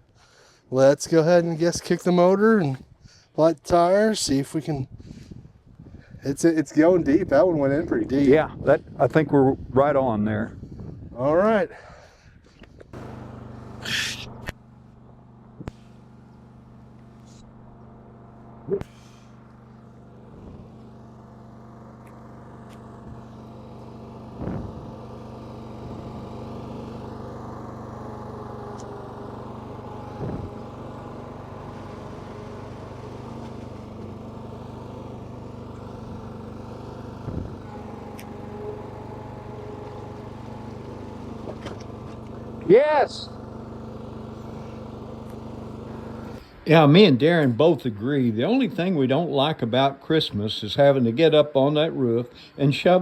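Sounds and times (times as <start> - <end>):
lawn mower engine running: 12.9 - 47.7.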